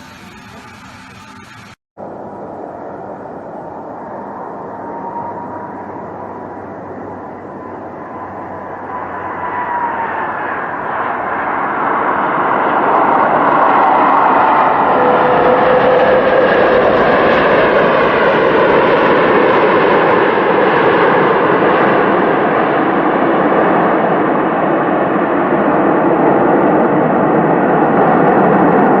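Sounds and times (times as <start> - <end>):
faint engine whine: 0.0 - 19.1
airplane engine noise: 0.0 - 29.0.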